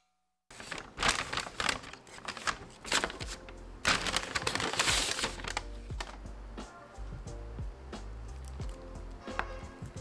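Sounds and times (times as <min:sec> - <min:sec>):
paper bag crinkling: 0:00.5 - 0:06.2.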